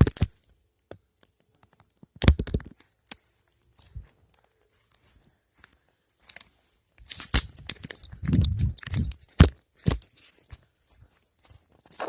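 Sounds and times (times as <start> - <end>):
footsteps crunching dry leaves: 3.2 - 12.0
twigs snapping: 5.6 - 10.2.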